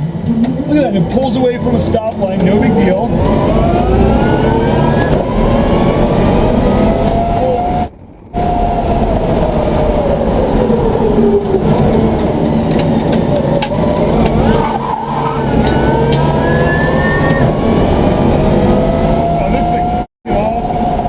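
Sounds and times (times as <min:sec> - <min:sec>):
road and drivetrain noise: 0:00.0 - 0:21.0
electric motors whining: 0:01.2 - 0:21.0.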